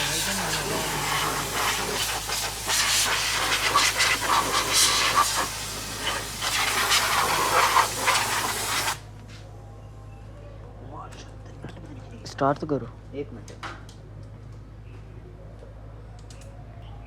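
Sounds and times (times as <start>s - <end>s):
compressed air hissing: 0.0s - 9.1s.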